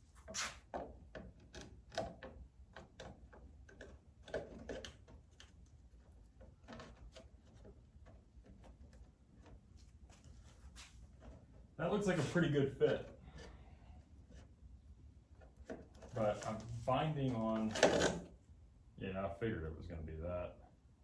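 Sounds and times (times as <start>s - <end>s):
plastic clicks and knocks: 0.7s - 9.6s.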